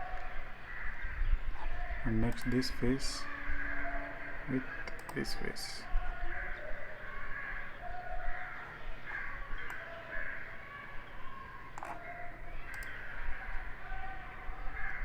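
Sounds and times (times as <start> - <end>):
birds calling: 0.0 - 15.0
sharp clicks: 2.2 - 2.6, 4.8 - 5.2, 12.7 - 13.0.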